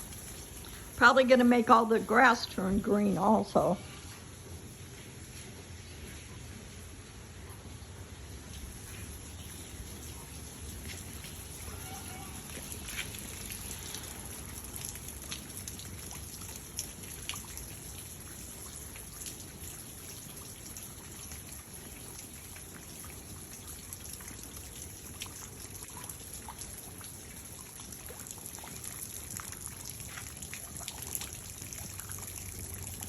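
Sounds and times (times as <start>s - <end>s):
drops pattering and dripping: 0.0s - 3.8s, 8.4s - 33.0s
steady rain: 0.0s - 33.0s.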